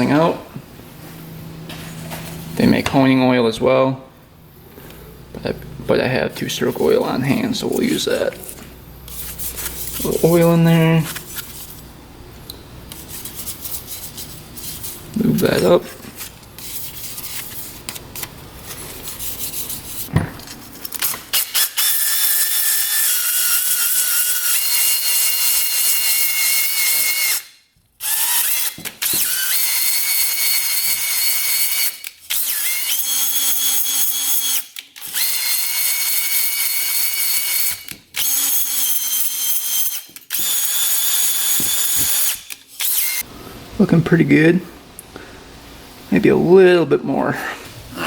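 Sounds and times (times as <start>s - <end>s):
drill motor whine: 21.8s - 43.2s.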